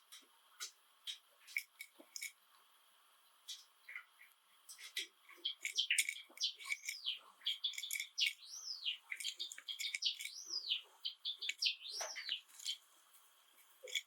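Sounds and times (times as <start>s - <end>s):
sparrow singing clicks and whistles: 4.7s - 12.8s.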